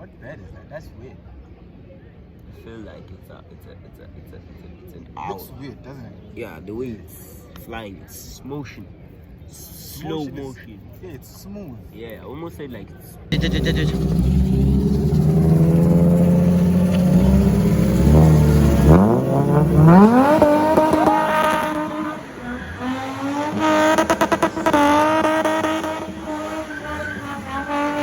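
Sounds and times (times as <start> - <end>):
car engine revving: 13.3 - 28.0.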